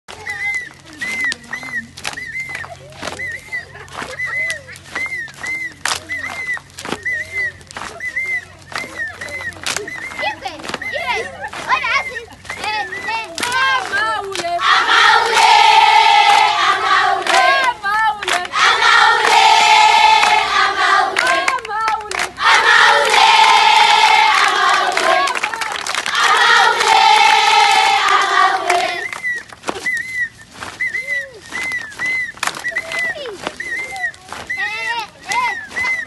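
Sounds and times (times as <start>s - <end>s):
voices calling out: 0.1s - 36.0s
girls singing in unison: 12.6s - 29.2s.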